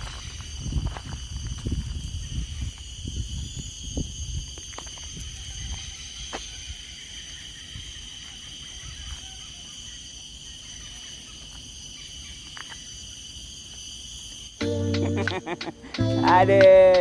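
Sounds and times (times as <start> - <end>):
wind rumble on microphone: 0.0 - 6.3
insect chorus drone: 0.0 - 17.0.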